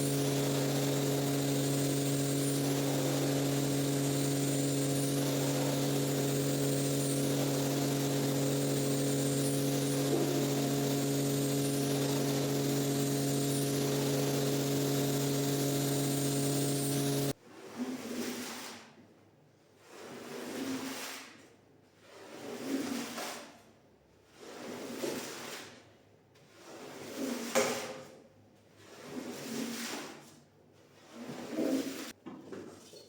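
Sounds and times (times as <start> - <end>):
electric motor humming and hissing: 0.0 - 17.4.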